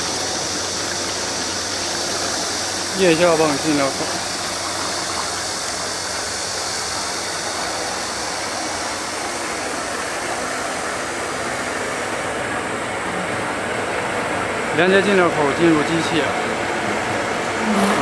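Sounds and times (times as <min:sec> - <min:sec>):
electric motor hum: 0:00.0 - 0:12.5, 0:17.5 - 0:18.0
rushing slurry noise: 0:00.0 - 0:18.0.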